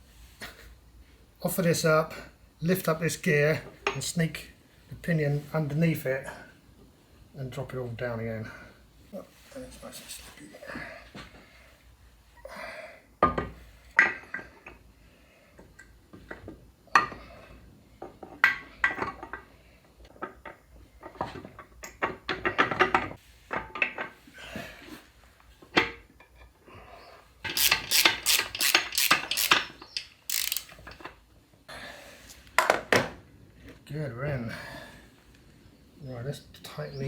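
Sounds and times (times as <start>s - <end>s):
metal gears clinking and knocking: 27.4s - 31.1s
quick clicks: 27.5s - 30.8s.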